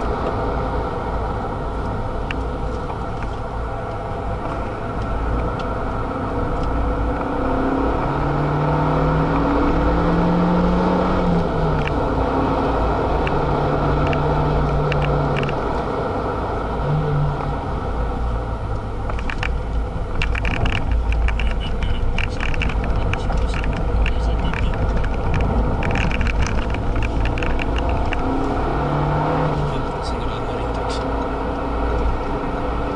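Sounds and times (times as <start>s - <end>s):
car engine under load: 0.0s - 32.9s
road and wind noise: 0.0s - 32.9s
clicks and rattles: 19.1s - 28.2s.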